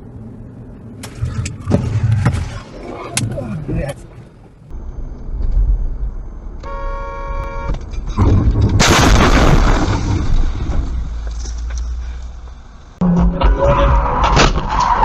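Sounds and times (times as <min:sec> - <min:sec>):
heavy rumbling noise: 0:00.0 - 0:06.7, 0:07.8 - 0:15.0
car horn: 0:06.6 - 0:07.8, 0:13.6 - 0:14.6
loud crash: 0:08.1 - 0:11.2.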